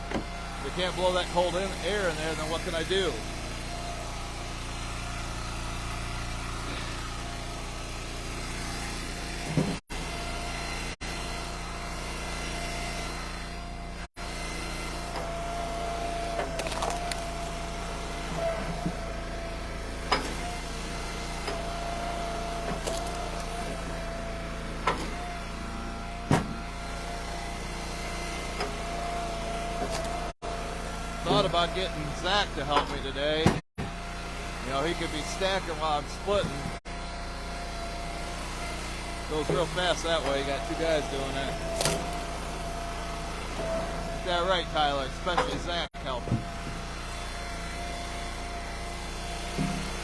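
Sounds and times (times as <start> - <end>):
log splitter engine running: 0.0 - 50.0
steady whine: 39.3 - 46.9.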